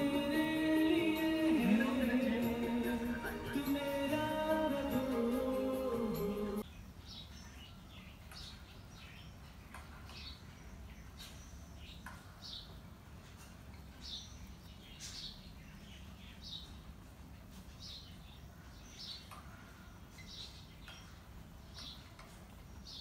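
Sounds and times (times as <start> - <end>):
background music with singing: 0.0 - 6.6.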